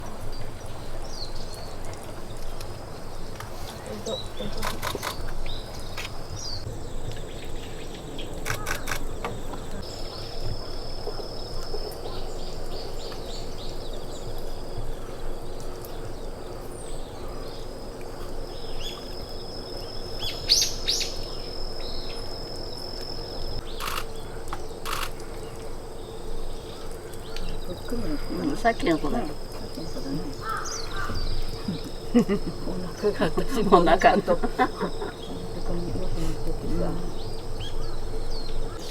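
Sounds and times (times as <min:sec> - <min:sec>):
birds chirping: 0:00.0 - 0:38.9
low background hum: 0:00.0 - 0:38.9
sharp clicks: 0:04.6 - 0:05.4, 0:08.4 - 0:09.4, 0:23.7 - 0:25.2.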